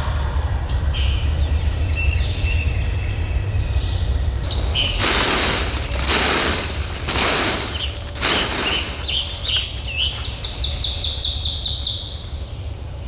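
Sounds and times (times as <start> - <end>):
songbirds chirping: 3.8 - 13.0
loud rush of noise: 4.5 - 9.6.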